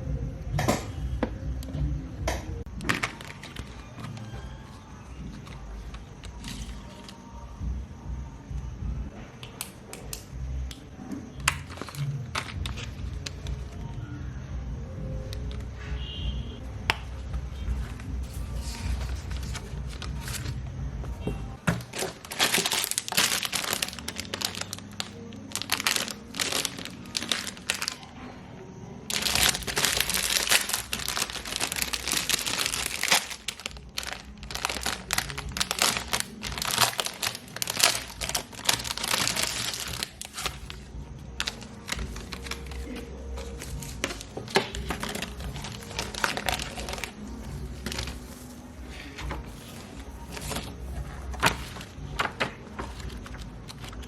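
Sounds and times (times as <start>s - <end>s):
background music: 0.0s - 54.0s
gift packaging crinkling: 2.7s - 7.3s, 11.4s - 13.9s, 17.1s - 20.6s, 21.2s - 28.1s, 29.1s - 54.0s.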